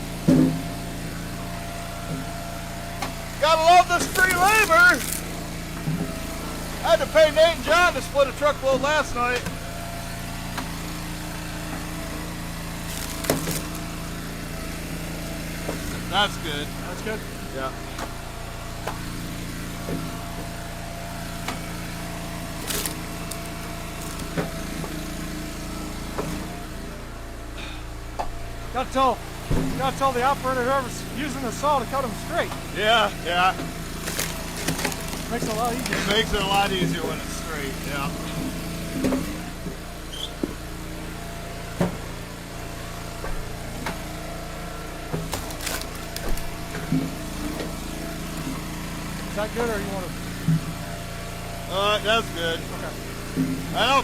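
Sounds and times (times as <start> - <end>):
log splitter engine running: 0.0 - 54.0
wood cracking: 3.4 - 5.5, 12.7 - 14.2, 21.2 - 25.3, 32.4 - 39.1, 45.2 - 49.4.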